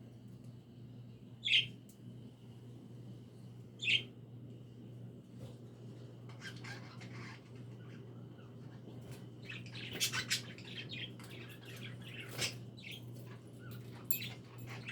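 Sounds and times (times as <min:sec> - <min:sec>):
budgies chirping and chattering: 0:06.3 - 0:14.9.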